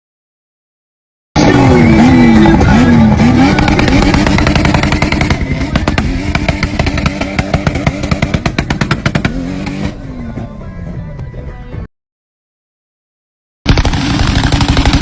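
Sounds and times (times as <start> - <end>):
exhaust popping and banging: 1.4 - 9.9
car engine revving: 1.4 - 10.4, 13.8 - 15.0.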